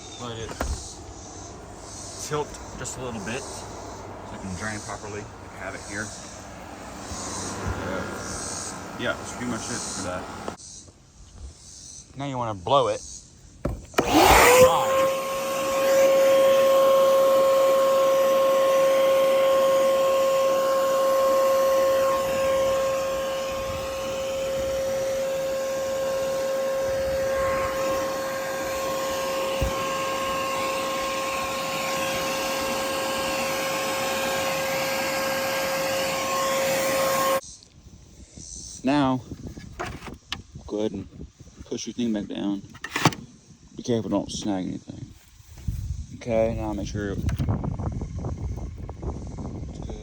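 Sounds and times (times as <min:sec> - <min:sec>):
electric blower motor whining: 0:00.0 - 0:10.6, 0:13.7 - 0:37.4.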